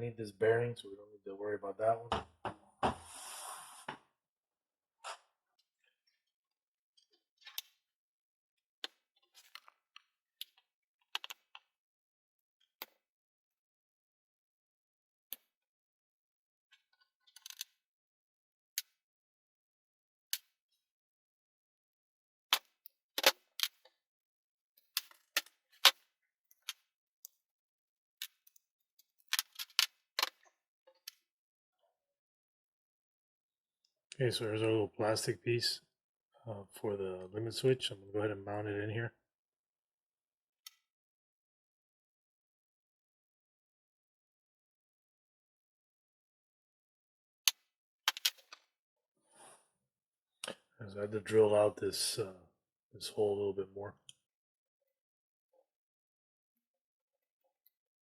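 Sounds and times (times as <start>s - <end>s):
small plastic parts clicking: 11.2s - 11.4s, 29.3s - 31.2s, 47.5s - 48.6s
plastic parts clicking on a surface: 47.5s - 48.6s.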